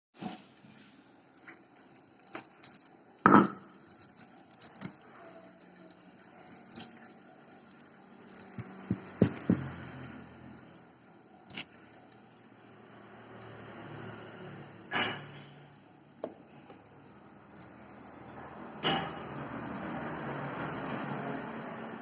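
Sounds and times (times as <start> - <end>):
eating noises: 1.4 - 12.6.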